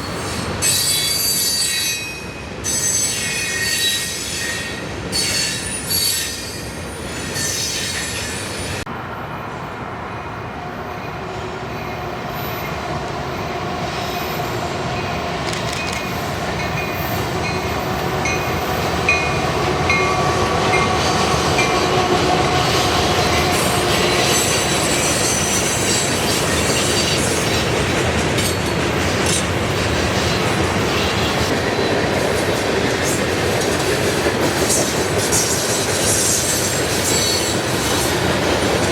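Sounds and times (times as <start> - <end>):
train wheels squealing: 0.0 - 8.8, 11.8 - 12.8, 23.4 - 27.7, 34.6 - 38.1
freight train rolling on rails: 0.0 - 38.9.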